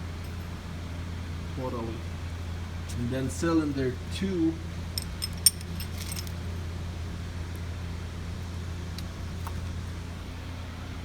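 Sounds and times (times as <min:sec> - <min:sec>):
steady low hum: 0:00.0 - 0:11.0
light metallic clinks: 0:05.0 - 0:06.4.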